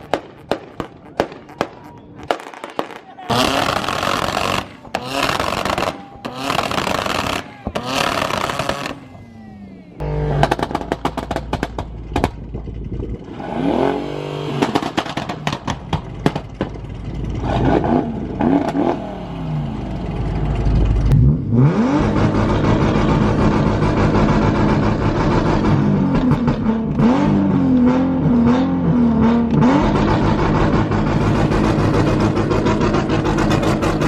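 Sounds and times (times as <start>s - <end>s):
exhaust pops and crackles: 0.0s - 9.2s, 10.3s - 13.3s, 14.6s - 19.0s, 22.0s - 27.9s, 29.4s - 34.0s
car engines revving: 0.0s - 34.0s
steady engine drone: 3.2s - 34.0s.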